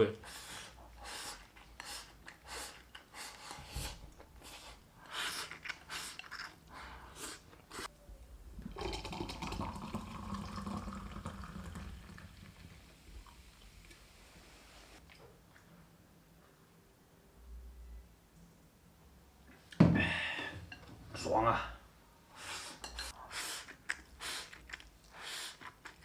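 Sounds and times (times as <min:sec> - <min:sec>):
wet chewing and mouth smacks: 0:23.5 - 0:26.0.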